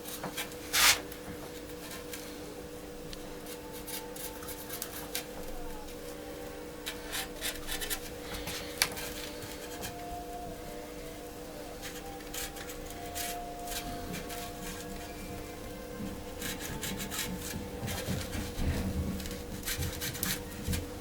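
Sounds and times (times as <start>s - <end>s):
faint steady hum: 0.0s - 21.0s
scratchy drawing strokes: 6.9s - 10.3s, 11.6s - 20.9s.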